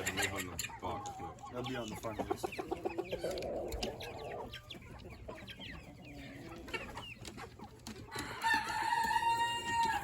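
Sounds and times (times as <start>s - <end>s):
chickens clucking: 0.0s - 10.0s
rooster crowing: 8.2s - 10.0s.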